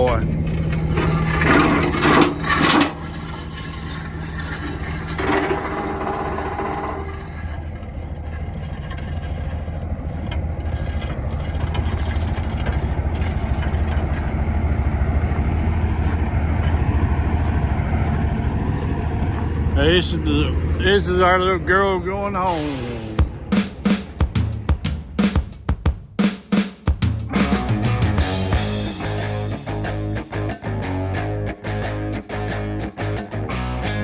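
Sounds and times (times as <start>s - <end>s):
diesel engine idling: 0.0s - 26.1s.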